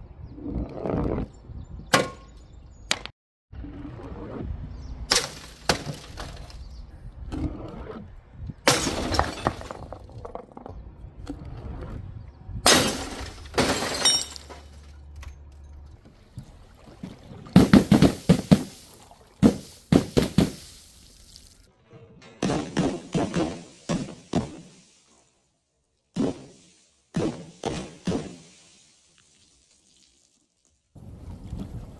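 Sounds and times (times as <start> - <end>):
glass bottles smashing: 8.7 - 10.2, 12.7 - 14.9
glass shards clinking: 12.7 - 15.0.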